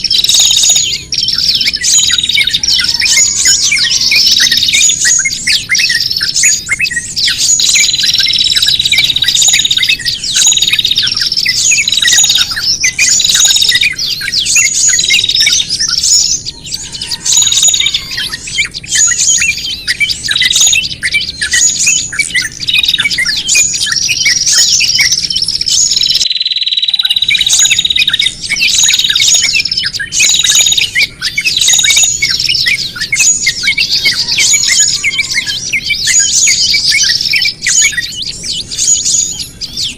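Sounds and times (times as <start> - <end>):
songbirds chirping excitedly: 0.0 - 39.9.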